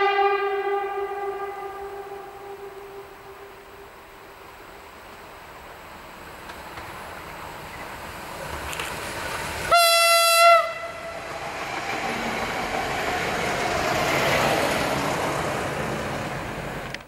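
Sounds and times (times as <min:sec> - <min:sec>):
short train horn blast: 0:00.0 - 0:03.8, 0:09.7 - 0:11.2
railcar rolling past: 0:00.0 - 0:17.0.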